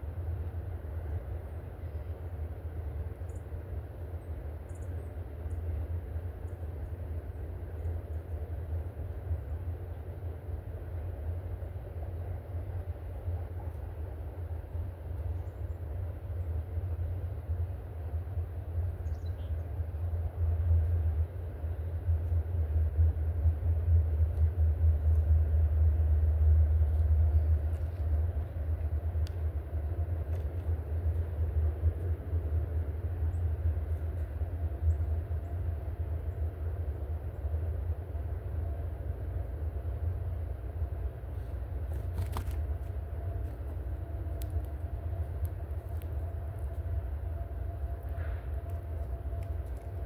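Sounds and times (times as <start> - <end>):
low outdoor rumble: 0.0 - 50.0
faint sharp ticks: 29.2 - 29.4.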